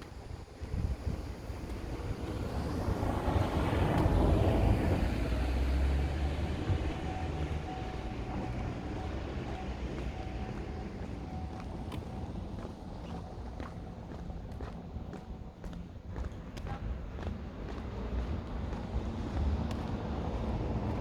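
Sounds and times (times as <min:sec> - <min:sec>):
vehicle passing by: 0:02.0 - 0:11.6, 0:17.2 - 0:21.0.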